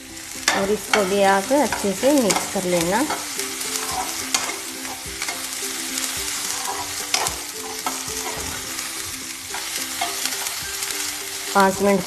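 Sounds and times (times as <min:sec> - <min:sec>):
onions sizzling in hot oil: 0:00.0 - 0:12.0
metal spatula scraping pan: 0:00.4 - 0:12.0.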